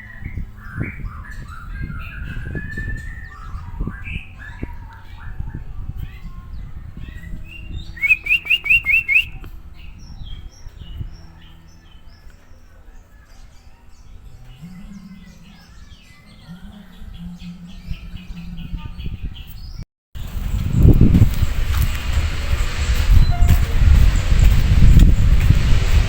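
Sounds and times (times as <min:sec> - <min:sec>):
songbird chirping and whistling: 0:00.0 - 0:19.8, 0:22.8 - 0:25.1
low rumble: 0:20.2 - 0:26.0.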